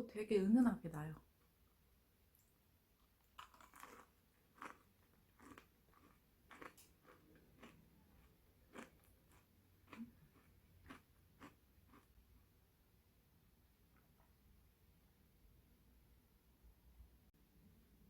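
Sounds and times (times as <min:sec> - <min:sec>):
chewing crisp waffle: 0:03.0 - 0:12.2.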